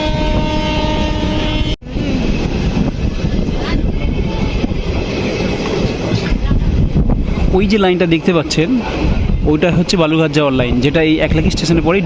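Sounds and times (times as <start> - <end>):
train horn: 0.0 - 1.8
moving train rumbling and rattling: 0.0 - 12.0.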